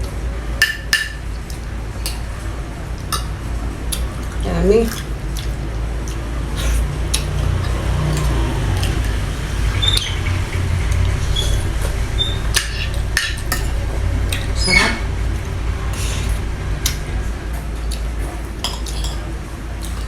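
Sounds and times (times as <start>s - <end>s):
steady low hum: 0.0s - 20.0s
wet chewing and lip smacks: 3.9s - 9.2s.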